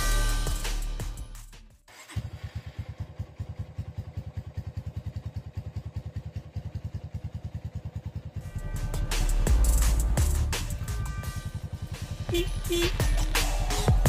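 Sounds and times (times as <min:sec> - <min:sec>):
motorcycle engine idling: 0:01.9 - 0:14.0.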